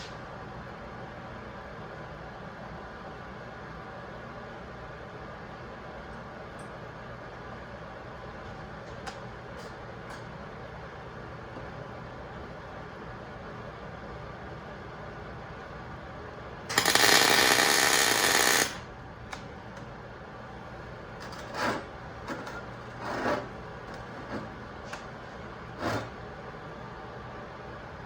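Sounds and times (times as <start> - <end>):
welder crackling: 16.7 - 19.5.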